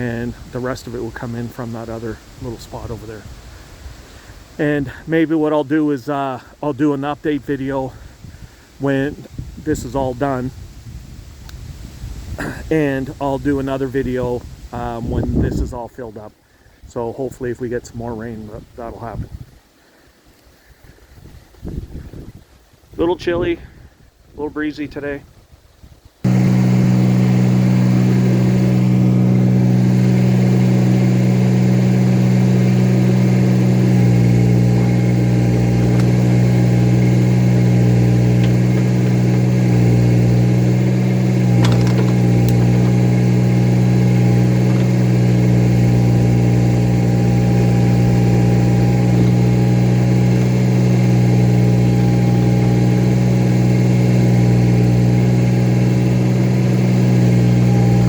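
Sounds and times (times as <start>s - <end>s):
tractor engine running: 0.0s - 3.4s, 26.2s - 58.0s
deep rumble: 26.2s - 50.2s.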